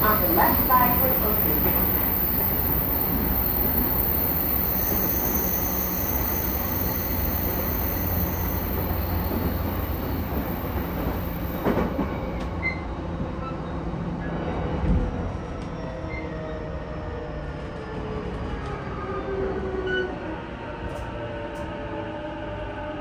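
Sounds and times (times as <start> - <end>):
train wheels rumbling on rail: 0.0 - 23.0
wheel squeal: 0.9 - 10.5.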